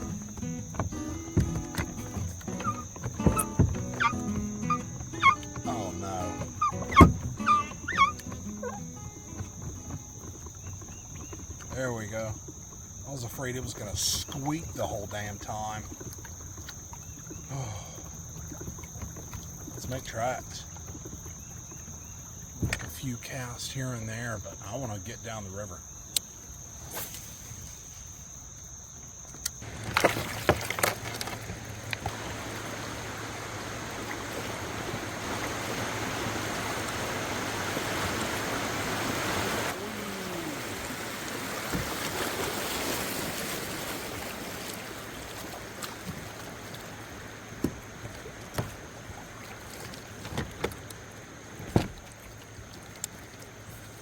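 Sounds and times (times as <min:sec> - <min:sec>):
knocks against boat: 0:00.0 - 0:11.7, 0:22.5 - 0:23.0, 0:41.5 - 0:42.6, 0:47.6 - 0:49.1, 0:51.6 - 0:52.2
water rushing along hull: 0:00.0 - 0:27.8, 0:29.6 - 0:54.0.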